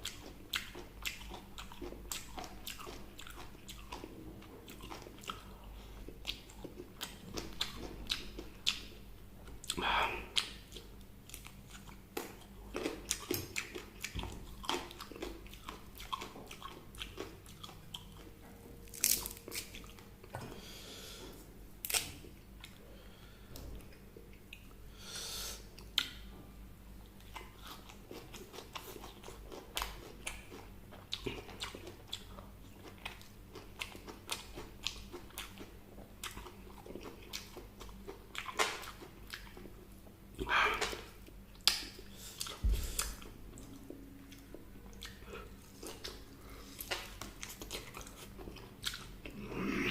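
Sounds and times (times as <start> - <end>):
person crunching fried chicken: 18.8 - 20.0.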